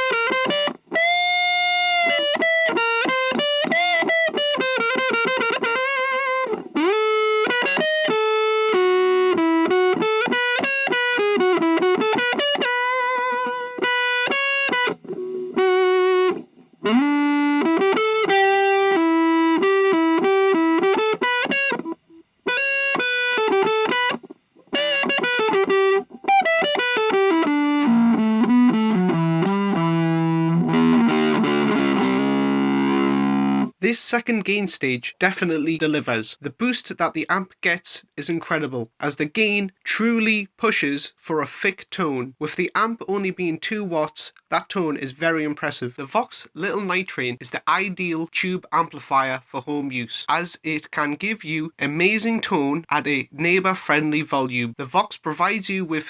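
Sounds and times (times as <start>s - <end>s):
distorted electric guitar lead: 0.0s - 33.8s.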